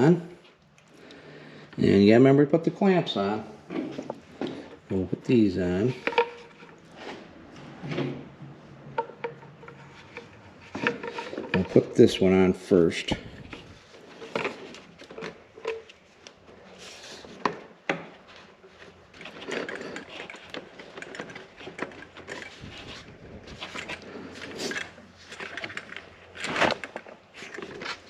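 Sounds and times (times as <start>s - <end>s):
rustling scrapes of rubber hose: 5.6s - 7.8s, 9.6s - 17.5s, 18.2s - 28.0s.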